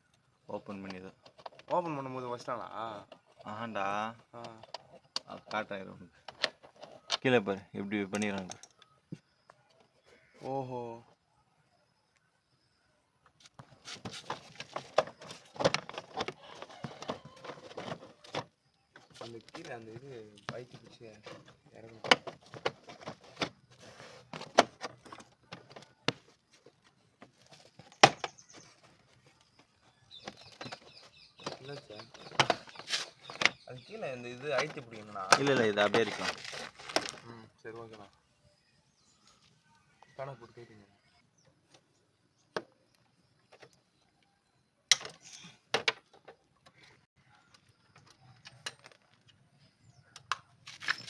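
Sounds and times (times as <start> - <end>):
metal tools clicking and knocking: 8.1 - 8.8.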